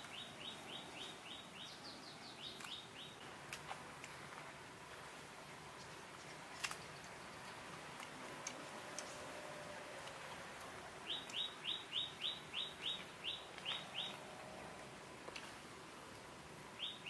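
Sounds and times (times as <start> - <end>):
faint steady hiss: 0.0 - 17.0
faint clicks: 5.8 - 9.3, 9.9 - 11.4.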